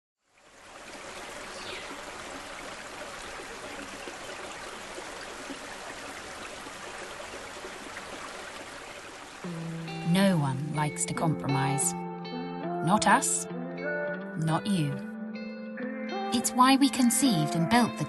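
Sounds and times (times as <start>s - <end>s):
running water: 0.2s - 11.8s.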